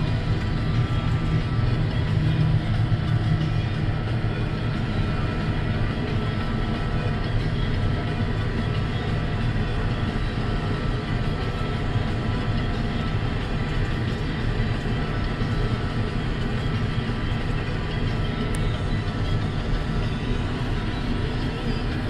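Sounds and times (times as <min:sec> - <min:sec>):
combine harvester drone: 0:00.0 - 0:22.0
steady whining tones: 0:00.0 - 0:22.0.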